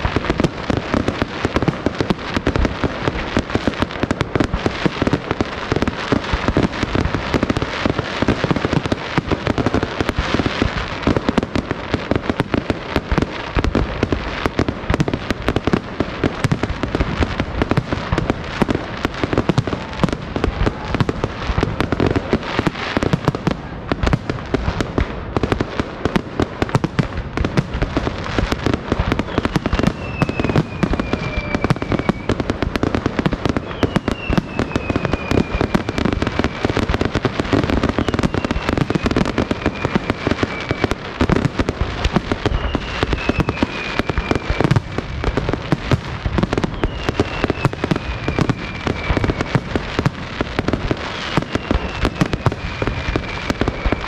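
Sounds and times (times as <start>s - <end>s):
fireworks bursting and crackling: 0.0s - 54.0s
firework whistles: 26.6s - 54.0s.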